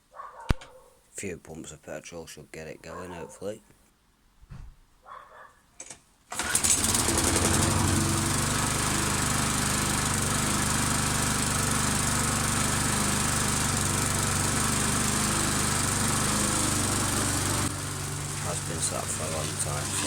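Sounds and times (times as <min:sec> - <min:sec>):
lawn mower engine running: 0:06.3 - 0:20.0
petrol pump priming: 0:06.3 - 0:20.0.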